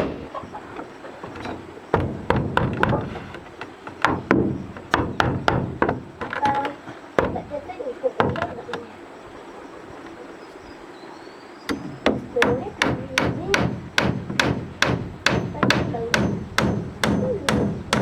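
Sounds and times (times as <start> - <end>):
hammer blows on wood: 11.7 - 18.0.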